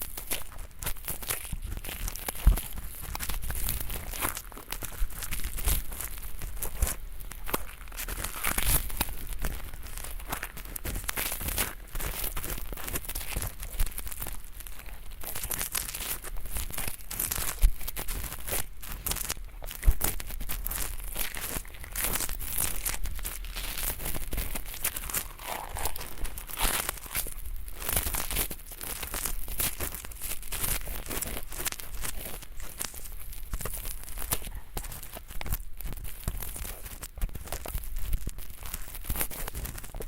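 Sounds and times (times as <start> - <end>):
ear pick scratching earwax: 18.1 - 33.0.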